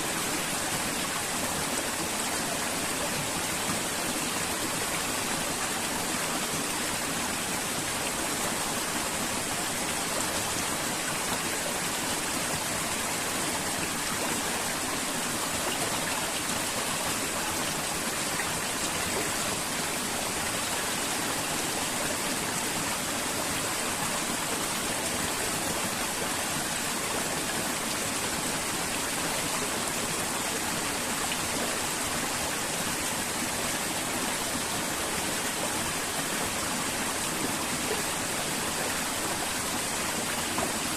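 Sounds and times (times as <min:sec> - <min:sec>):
river water flowing: 0:00.0 - 0:40.9.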